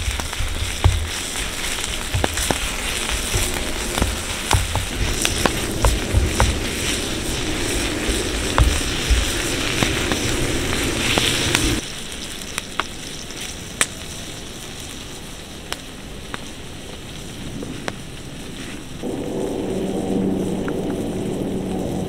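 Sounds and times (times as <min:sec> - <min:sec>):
rumbling background: 0:00.0 - 0:11.8, 0:17.3 - 0:22.0
wood fire crackling and popping: 0:00.0 - 0:22.0.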